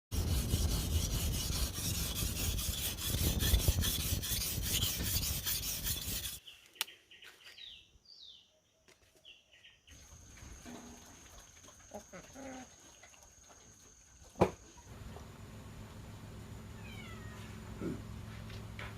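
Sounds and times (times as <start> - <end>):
rough rhythmic rasping: 0.1 - 6.4.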